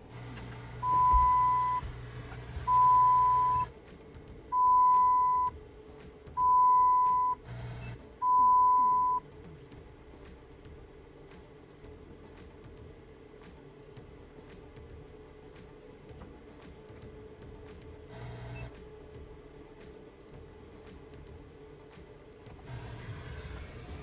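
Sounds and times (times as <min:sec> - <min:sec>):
long electronic beeps: 0:00.8 - 0:01.8, 0:02.7 - 0:03.7, 0:04.6 - 0:05.5, 0:06.4 - 0:07.4, 0:08.2 - 0:09.2.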